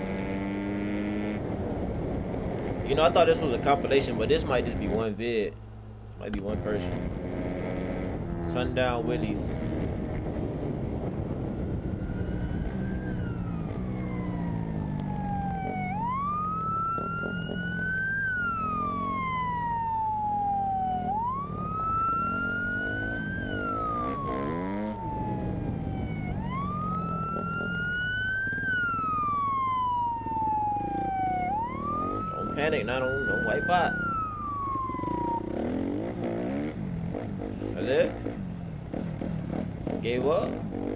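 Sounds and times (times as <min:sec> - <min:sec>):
police siren wailing: 0:07.9 - 0:36.6.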